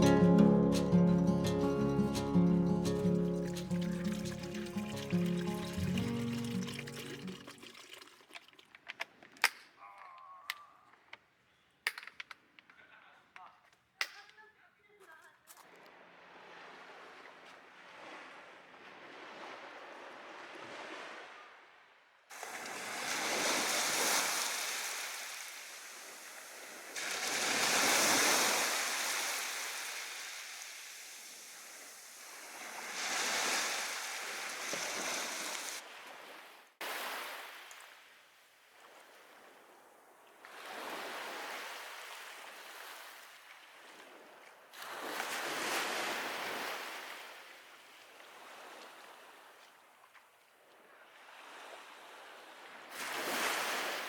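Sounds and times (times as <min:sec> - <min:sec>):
sea waves washing ashore: 0:00.0 - 0:09.0, 0:15.8 - 0:38.0, 0:40.4 - 0:49.4, 0:51.2 - 0:54.0.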